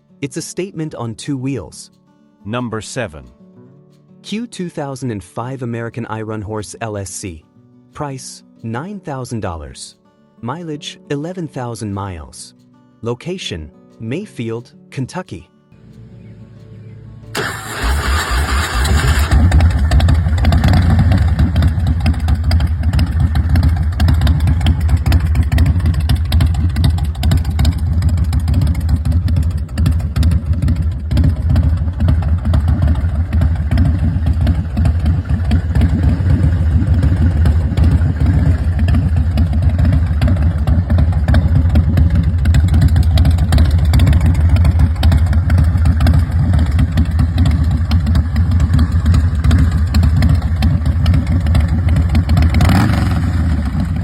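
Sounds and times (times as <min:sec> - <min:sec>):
motorcycle engine running: 0:16.0 - 0:54.0.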